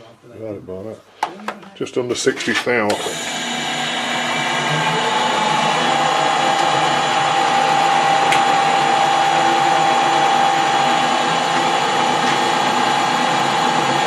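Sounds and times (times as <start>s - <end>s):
metal lathe whining: 3.0s - 14.0s.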